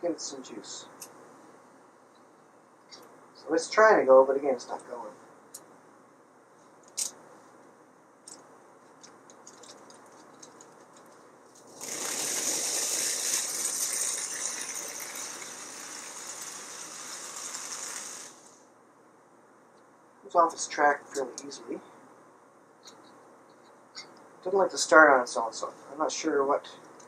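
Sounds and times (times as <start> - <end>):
toy train motor whirring rattle: 11.7 - 18.6.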